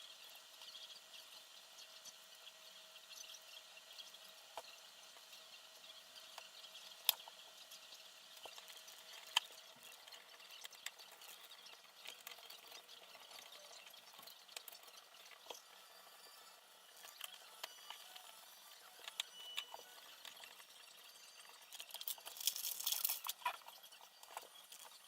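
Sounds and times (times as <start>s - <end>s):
small parts and tools clicking: 8.4s - 25.0s.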